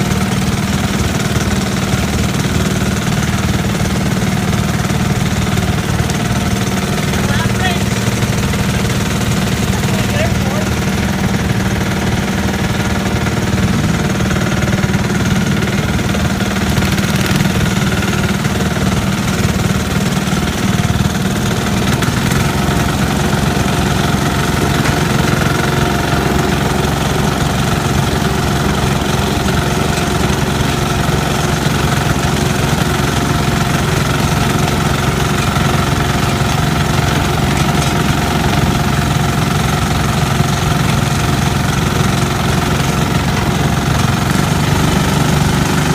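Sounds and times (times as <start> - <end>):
garden tractor engine running: 0.0 - 45.9.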